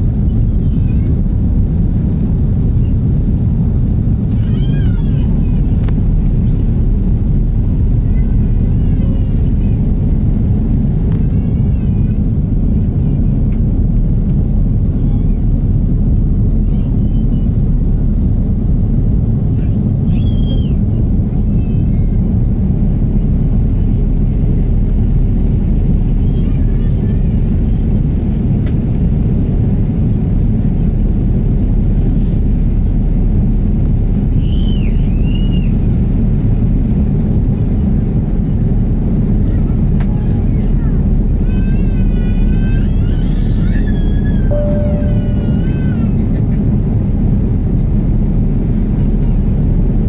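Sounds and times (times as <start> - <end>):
jet engines rumbling: 0.0 - 50.0
two-note whistle: 44.5 - 45.4.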